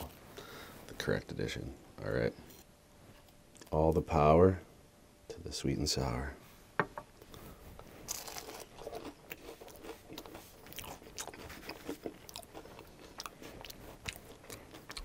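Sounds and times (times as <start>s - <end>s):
crunchy chewing: 7.2s - 15.0s
crisp bite crunch: 8.0s - 15.0s.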